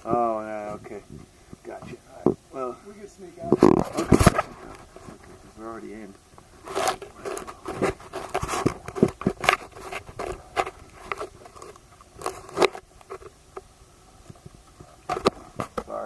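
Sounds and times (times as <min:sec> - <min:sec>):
scraping: 0:03.4 - 0:05.8, 0:06.5 - 0:13.4.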